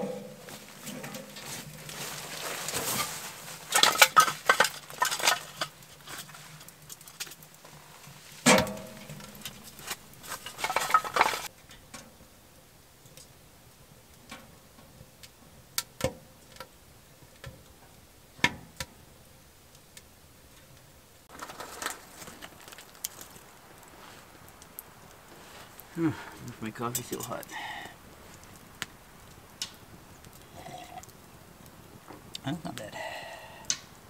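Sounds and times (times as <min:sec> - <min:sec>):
metal clank ringing: 0:00.0 - 0:00.4
metal clattering and scraping: 0:00.0 - 0:11.5, 0:21.3 - 0:23.9
wood fire crackling: 0:00.0 - 0:34.0.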